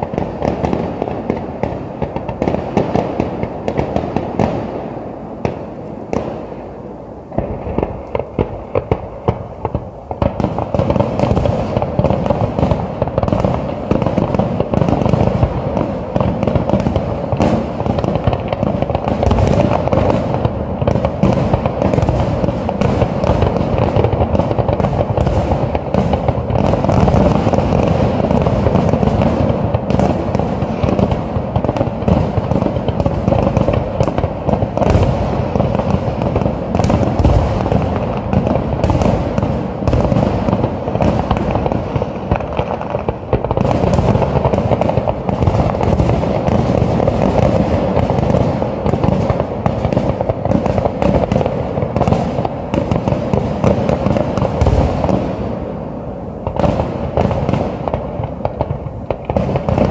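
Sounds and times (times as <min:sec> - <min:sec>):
fireworks booming and bursting: 0:00.0 - 0:59.9.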